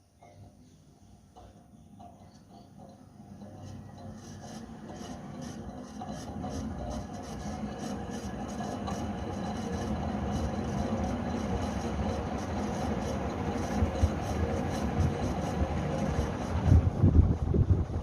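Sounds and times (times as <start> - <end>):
ceiling fan spinning up: 0.0 - 18.0
rush of air: 16.4 - 18.0.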